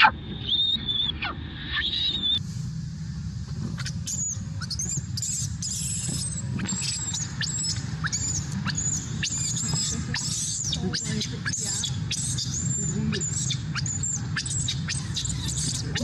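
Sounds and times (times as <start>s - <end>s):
low background rumble: 0.0s - 16.0s
baby macaque squealing: 3.8s - 16.0s.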